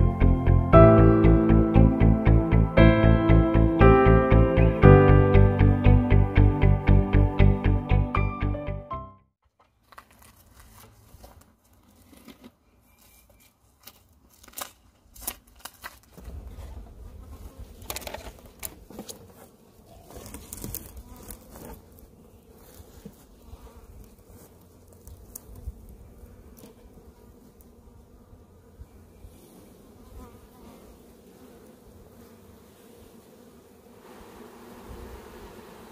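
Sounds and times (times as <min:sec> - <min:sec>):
music track: 0:00.0 - 0:09.3
bee swarm buzzing: 0:17.0 - 0:35.9
handling clicks and rustles: 0:17.7 - 0:22.0.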